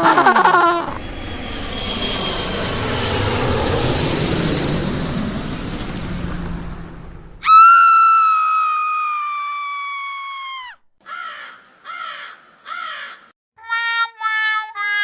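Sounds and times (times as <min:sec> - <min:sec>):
bird long clear call: 0:07.4 - 0:15.0
short harsh bird calls: 0:10.6 - 0:14.2.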